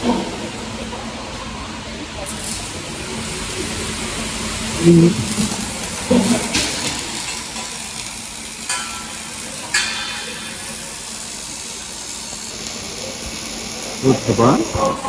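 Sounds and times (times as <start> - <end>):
factory noise: 0.0 - 15.0
arc welding sizzling crackle: 2.2 - 15.0.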